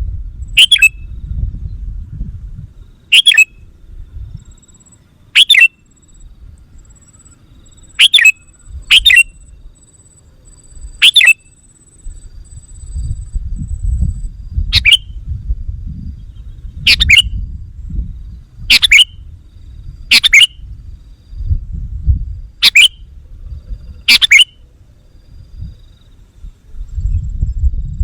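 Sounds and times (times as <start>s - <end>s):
bird chirping: 0.4s - 1.8s, 2.8s - 15.2s, 16.1s - 17.6s, 18.2s - 21.4s, 22.6s - 24.6s
low rumble: 12.1s - 24.1s.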